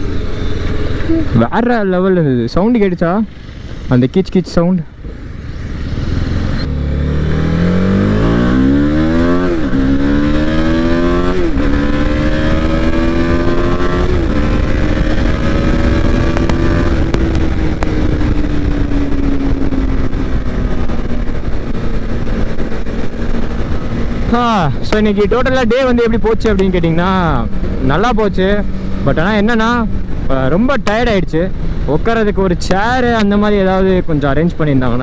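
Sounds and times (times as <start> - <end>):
motorcycle accelerating: 0.0 - 35.0
wind noise on microphone: 5.6 - 33.5.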